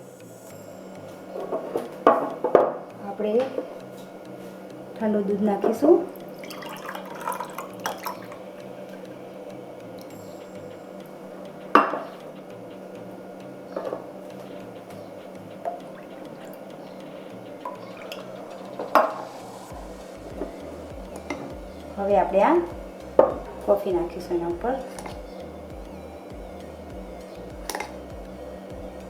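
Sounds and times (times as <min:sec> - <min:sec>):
glass and utensils clinking: 0:00.5 - 0:09.0, 0:09.7 - 0:19.4
milk pouring into a glass: 0:06.1 - 0:08.4.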